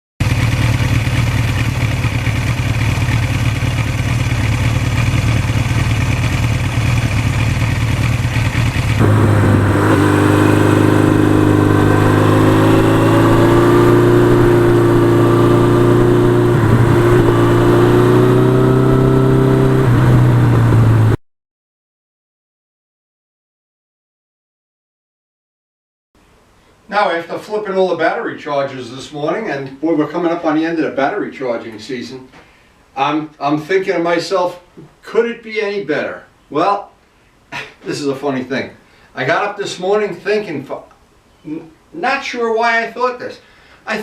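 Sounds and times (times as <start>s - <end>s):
motorcycle engine running: 0.2s - 21.2s.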